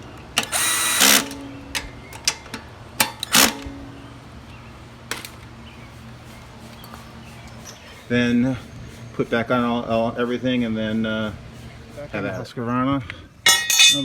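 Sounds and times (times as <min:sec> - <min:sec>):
cordless drill running: 0:00.4 - 0:01.4, 0:03.3 - 0:03.6.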